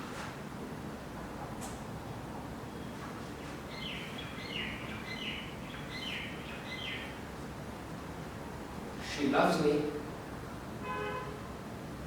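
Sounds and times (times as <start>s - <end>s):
bird chirping: 2.7s - 7.2s.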